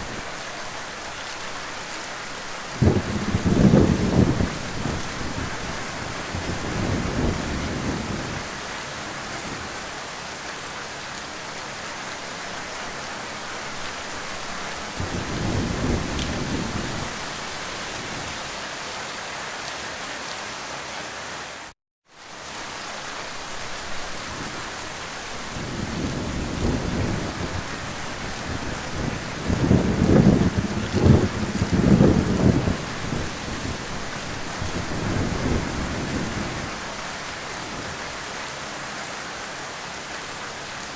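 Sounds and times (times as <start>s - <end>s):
heavy rain falling: 0.0s - 40.9s
low thunder rumbles: 2.7s - 8.5s, 14.9s - 18.4s, 25.4s - 37.0s.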